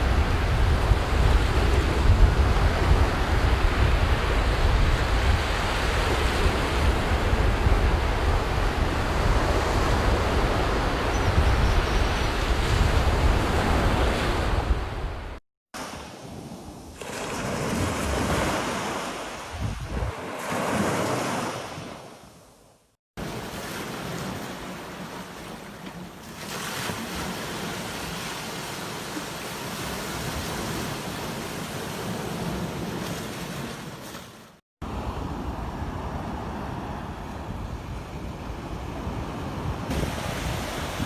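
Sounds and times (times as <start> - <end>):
wind on microphone: 0.0 - 15.4, 19.5 - 20.2, 34.9 - 41.0
ocean waves breaking: 12.4 - 22.3, 23.2 - 41.0.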